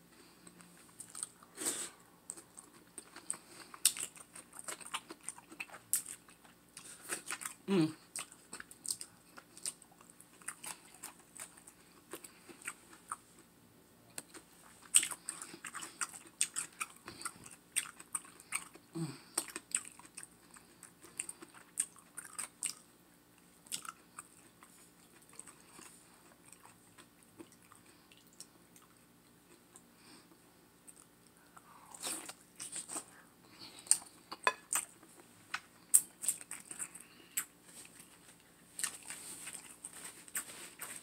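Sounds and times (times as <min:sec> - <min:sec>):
wet chewing and lip-smacking: 0:02.3 - 0:13.5, 0:14.2 - 0:22.9.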